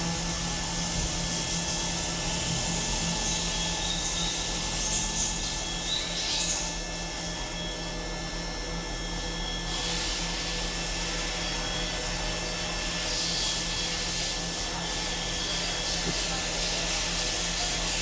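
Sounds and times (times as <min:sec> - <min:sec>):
machine motor hum: 0:00.0 - 0:18.0
steady machine whining tones: 0:00.0 - 0:18.0.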